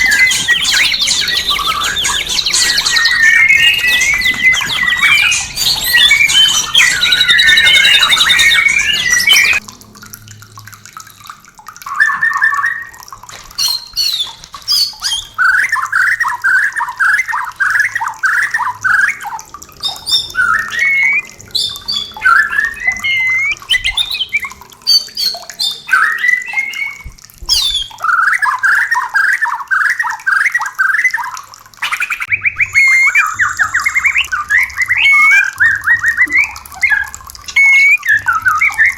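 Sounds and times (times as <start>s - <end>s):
bird chattering and singing: 0.0s - 9.6s, 13.6s - 38.9s.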